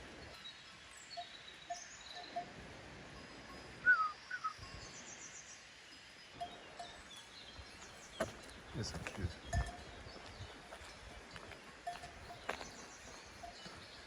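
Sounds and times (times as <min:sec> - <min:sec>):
livestock bell clanks: 0:01.0 - 0:03.8, 0:06.4 - 0:07.4, 0:09.0 - 0:13.9
birds calling: 0:03.2 - 0:11.0, 0:11.8 - 0:14.0.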